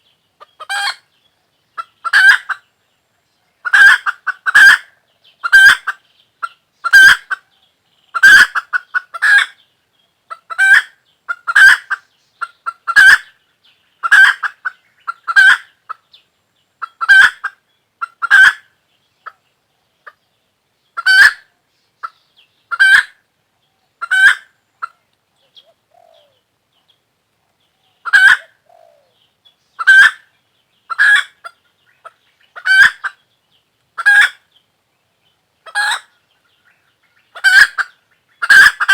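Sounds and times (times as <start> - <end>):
chicken calling loudly: 28.0 - 29.1, 29.8 - 30.2, 32.6 - 33.2, 35.6 - 36.1, 37.3 - 38.9.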